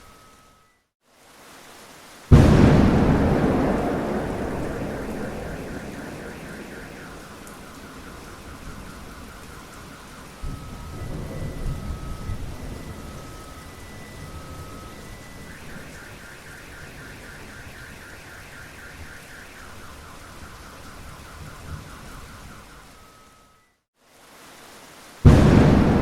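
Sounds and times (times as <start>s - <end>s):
steady rain falling: 0.0s - 26.0s
thunder rumbling: 2.3s - 22.7s, 25.2s - 26.0s.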